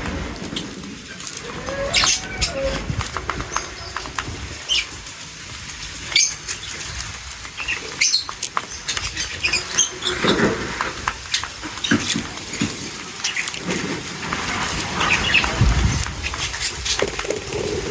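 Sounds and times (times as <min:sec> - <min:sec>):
clicks and scratchy rustles: 0:00.0 - 0:17.9
small birds chirping: 0:01.8 - 0:05.0, 0:05.8 - 0:13.6.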